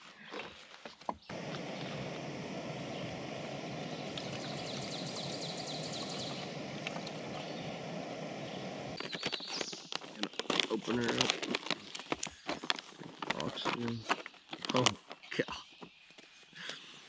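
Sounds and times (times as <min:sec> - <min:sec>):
camp stove hissing: 0:01.3 - 0:11.3.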